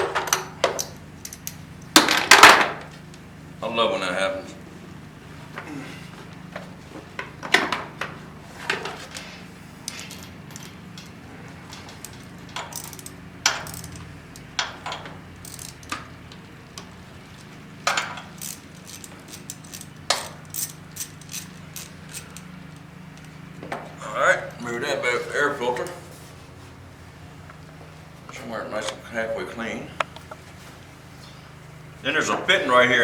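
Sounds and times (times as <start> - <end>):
steady low hum: 0.0 - 33.0
metallic clinks of hand tools: 9.1 - 11.2, 11.8 - 16.0, 17.4 - 22.5.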